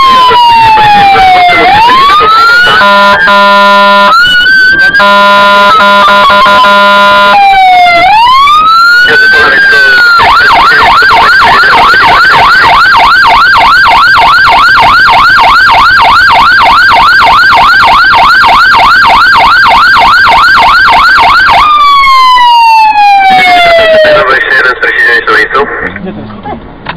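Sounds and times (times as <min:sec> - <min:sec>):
fire truck siren yelping: 0:00.0 - 0:24.8.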